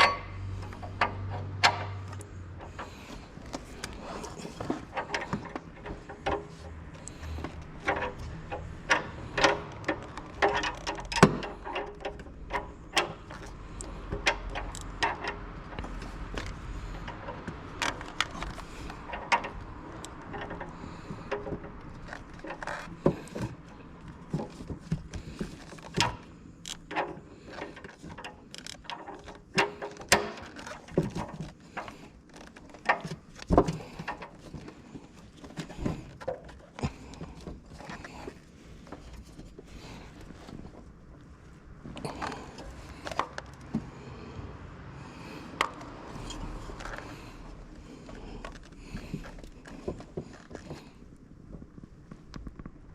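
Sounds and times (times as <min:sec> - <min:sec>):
metal tools clinking and knocking: 0:00.0 - 0:23.8.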